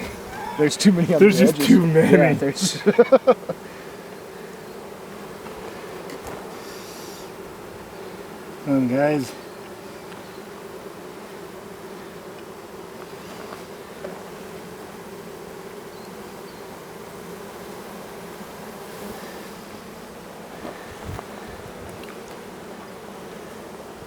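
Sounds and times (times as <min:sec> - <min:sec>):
honey bees humming: 0:00.0 - 0:14.2.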